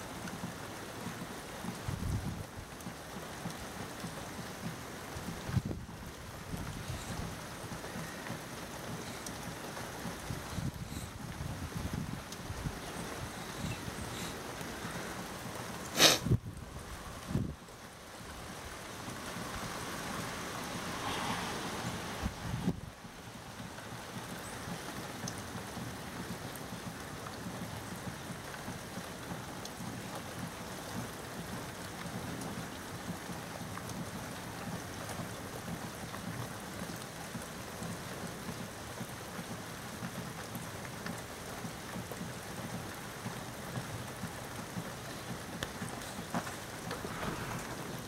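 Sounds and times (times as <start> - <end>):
heavy rain falling: 0.0 - 48.0.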